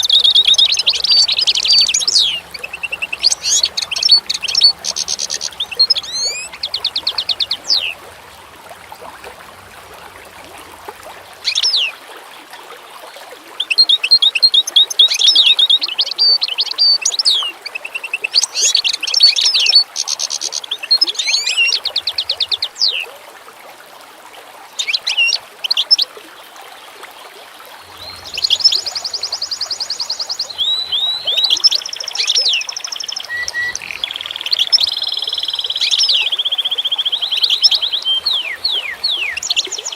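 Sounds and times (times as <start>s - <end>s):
songbirds trilling and whistling: 0.0s - 10.3s, 11.3s - 12.0s, 13.6s - 23.1s, 24.8s - 26.0s, 27.8s - 39.9s
faint steady hiss: 14.9s - 39.9s.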